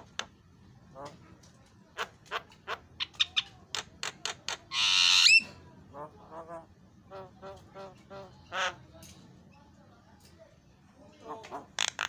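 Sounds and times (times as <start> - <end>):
bird singing harsh screeches: 4.7 - 5.5.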